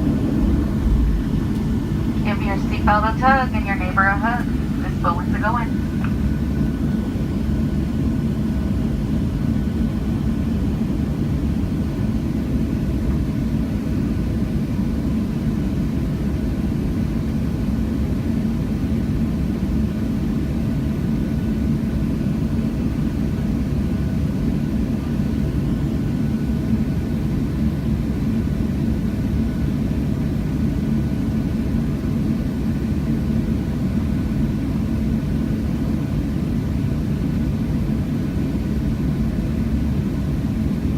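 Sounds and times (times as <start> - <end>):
faint steady tones: 0.0 - 7.2
airliner cabin engine rumble: 0.0 - 40.9.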